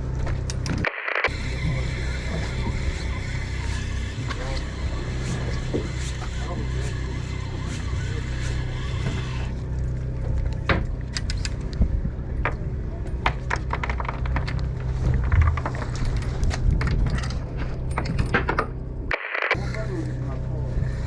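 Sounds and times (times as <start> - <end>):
boat engine droning: 1.3 - 16.4, 18.7 - 21.0
sharp clicks and knocks: 13.2 - 19.6.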